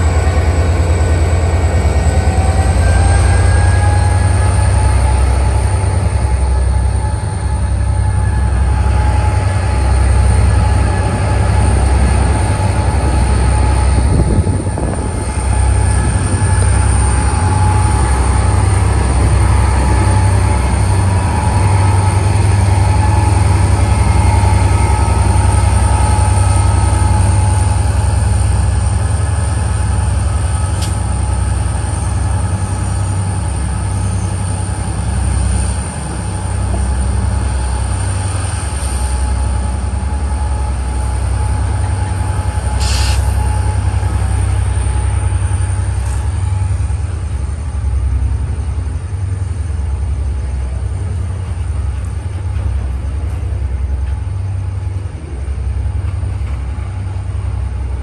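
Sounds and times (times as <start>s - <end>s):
train rumbling on track: 0.0s - 58.0s
brief hiss: 42.8s - 43.4s.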